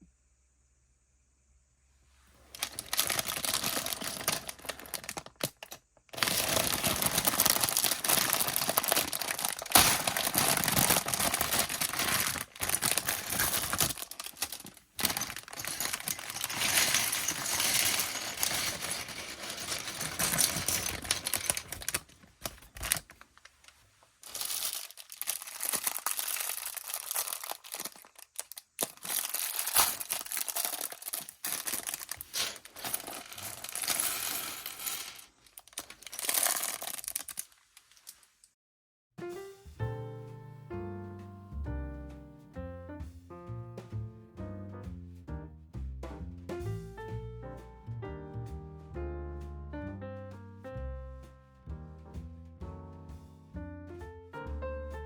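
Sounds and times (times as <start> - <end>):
plastic bag crinkling and tearing: 2.5 - 38.5.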